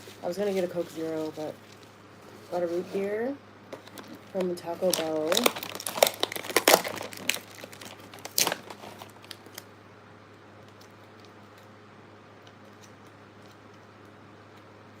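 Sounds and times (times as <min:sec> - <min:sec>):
food packaging crinkling: 0:00.0 - 0:02.8, 0:03.8 - 0:09.7
faint steady hum: 0:00.0 - 0:15.0.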